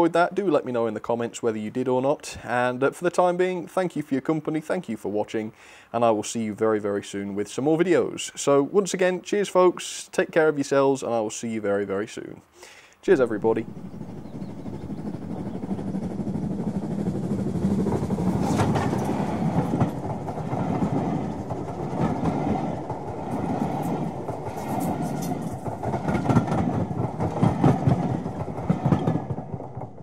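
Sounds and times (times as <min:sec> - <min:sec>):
train rumbling: 0:13.1 - 0:30.0
train wheels clicking over rail joints: 0:13.2 - 0:30.0.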